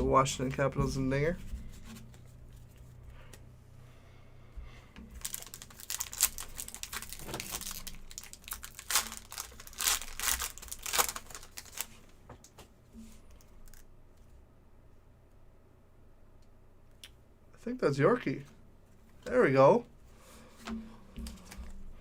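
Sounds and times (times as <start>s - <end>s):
foil wrapper tearing and crinkling: 5.2s - 12.0s.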